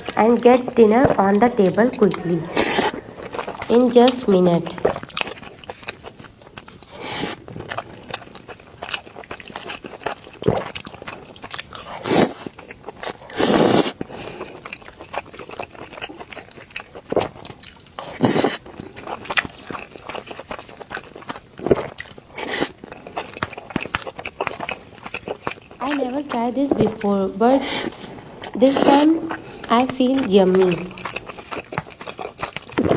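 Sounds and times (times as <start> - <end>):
person chewing with mouth clicks: 2.1 - 3.8, 25.5 - 32.9.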